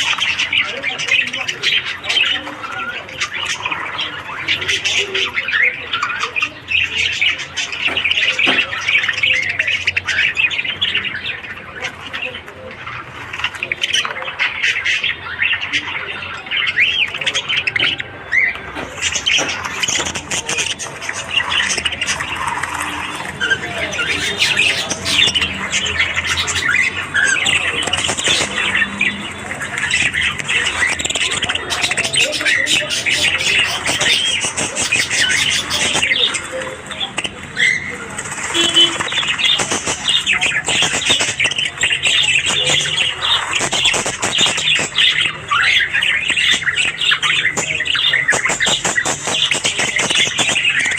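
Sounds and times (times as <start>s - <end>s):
budgerigars chattering and chirping: 0.0s - 50.9s.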